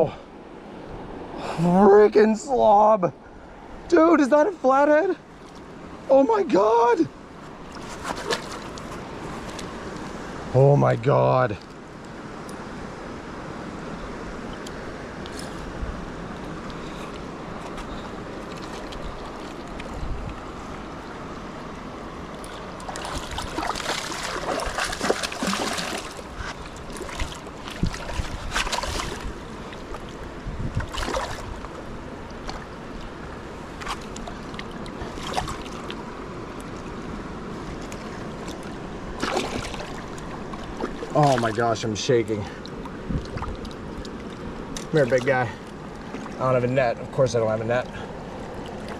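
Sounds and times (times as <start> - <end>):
river water rushing: 0.0 - 48.9
sharp splashes and knocks: 7.6 - 9.7, 17.6 - 20.0, 22.4 - 32.7, 33.7 - 37.0, 37.6 - 41.6, 42.6 - 46.4.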